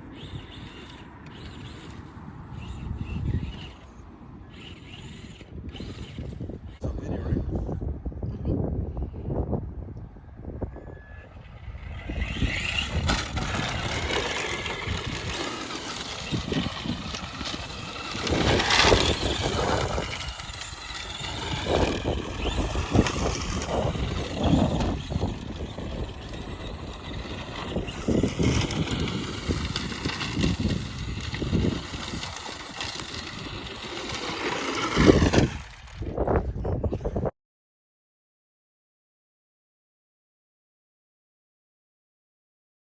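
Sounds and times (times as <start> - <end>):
electric motor and gears whining: 0.0 - 6.8, 11.2 - 36.4.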